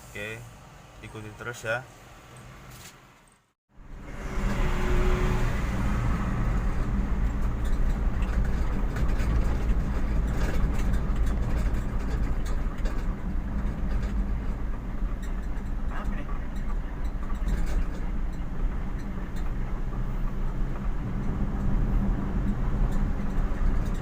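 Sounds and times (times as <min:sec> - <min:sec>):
road rumble: 0:00.0 - 0:24.0
car engine hum: 0:03.7 - 0:24.0.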